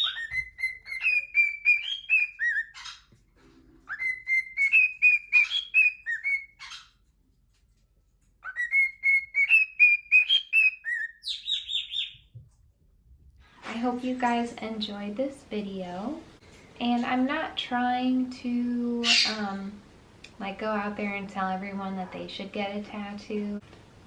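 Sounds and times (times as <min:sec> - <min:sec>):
cockatiel whistling: 0:00.0 - 0:03.0, 0:03.9 - 0:06.8, 0:08.4 - 0:12.2.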